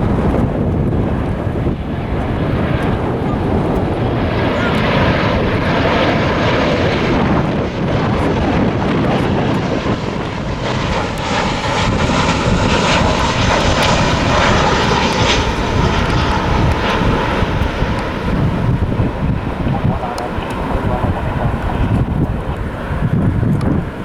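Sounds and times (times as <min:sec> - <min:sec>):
jet engines roaring: 0:00.0 - 0:24.0
wind gusting on microphone: 0:00.0 - 0:24.0.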